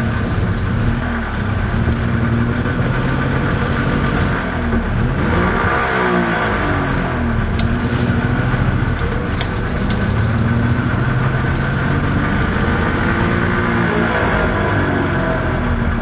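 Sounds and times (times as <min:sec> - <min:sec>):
two-stroke engine idling: 0:08.4 - 0:12.9.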